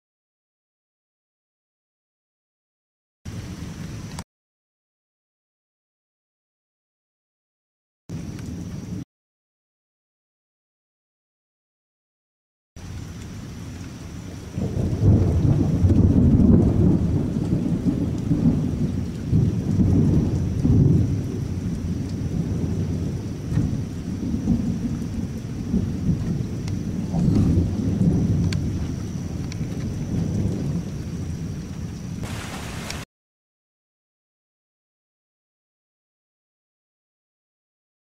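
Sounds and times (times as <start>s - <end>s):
steady rain: 3.3s - 4.2s, 8.1s - 9.0s, 12.8s - 33.1s
thunder rumbling: 12.8s - 33.0s.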